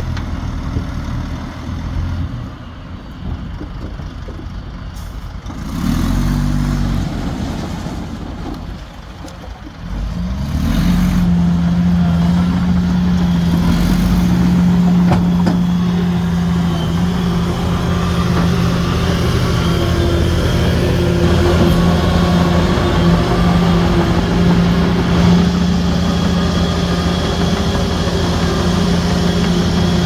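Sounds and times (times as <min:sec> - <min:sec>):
heavy diesel engines running: 0:00.0 - 0:30.0
engine revving up: 0:05.6 - 0:07.3, 0:10.0 - 0:30.0.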